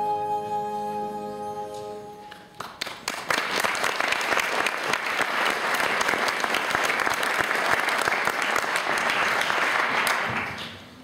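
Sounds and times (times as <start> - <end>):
flute piece: 0.0 - 2.5
audience clapping: 2.3 - 11.0.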